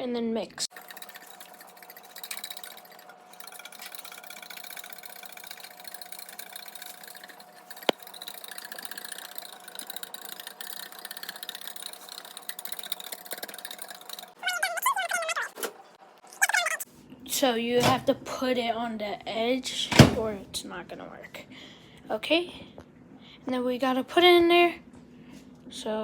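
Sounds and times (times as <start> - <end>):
whisk beating in glass bowl: 0.7 - 14.4.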